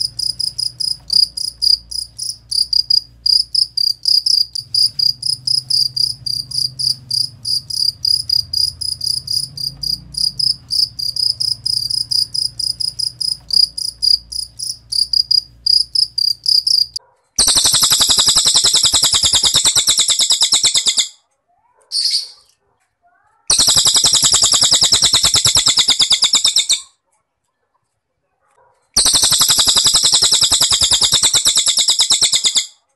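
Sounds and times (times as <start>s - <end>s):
cricket chirping: 0.0s - 21.1s, 23.5s - 26.8s, 29.0s - 32.7s
bird rattling trills: 16.6s - 21.2s, 23.5s - 26.8s, 29.0s - 32.8s.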